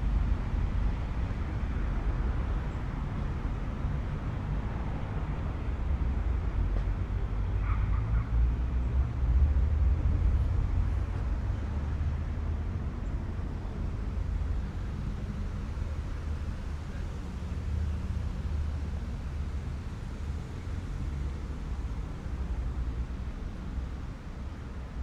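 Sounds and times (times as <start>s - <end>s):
low rumble of passing vehicles: 0.0s - 25.0s.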